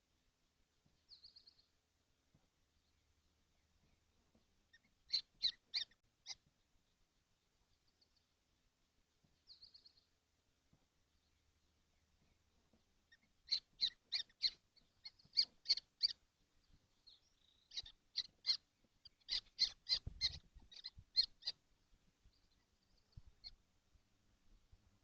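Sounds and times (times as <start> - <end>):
kestrels calling: 4.7 - 6.5, 12.6 - 21.7.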